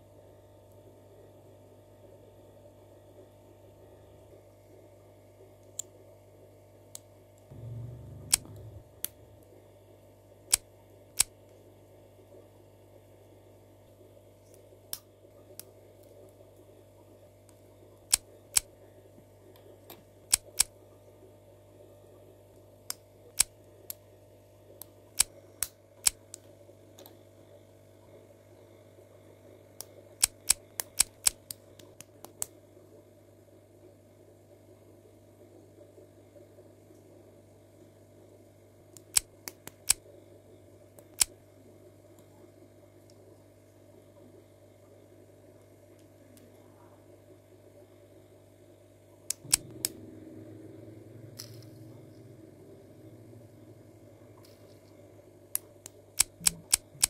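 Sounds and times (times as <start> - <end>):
steady low hum: 0.0 - 57.0
low rumble of handling: 7.5 - 9.6.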